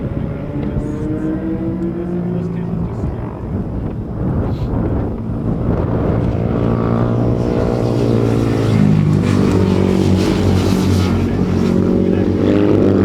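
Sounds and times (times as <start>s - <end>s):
racing motorcycle engines: 0.0s - 13.0s.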